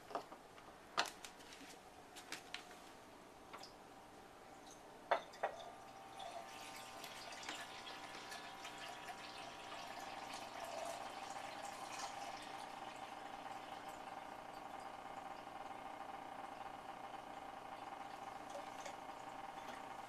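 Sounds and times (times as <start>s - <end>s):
water pouring into plastic reservoir: 5.6s - 16.7s.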